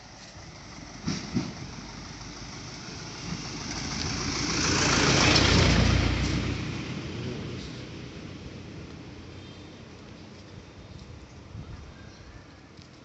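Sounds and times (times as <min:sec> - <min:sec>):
vehicle passing by: 0:00.4 - 0:09.1.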